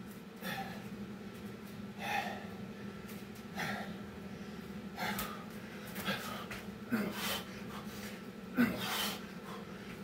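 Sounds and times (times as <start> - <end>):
man gasping breaths: 0.4 - 0.9, 2.0 - 2.7, 3.5 - 10.0.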